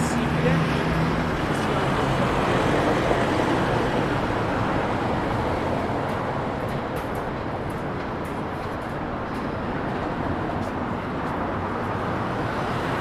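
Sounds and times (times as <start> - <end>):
vehicle rumble: 0.0 - 2.4
city street traffic: 0.0 - 13.0.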